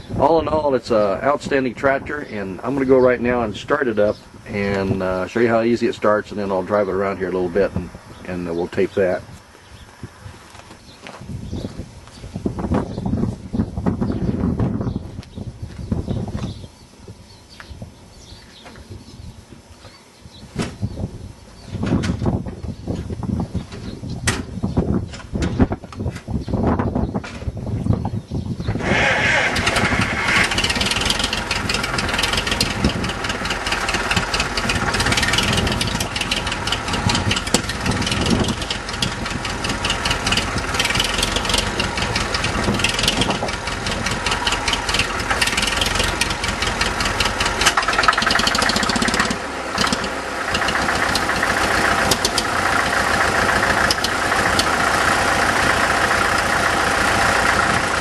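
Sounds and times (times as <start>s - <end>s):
tractor diesel engine running: 0.0s - 9.4s, 28.6s - 58.0s.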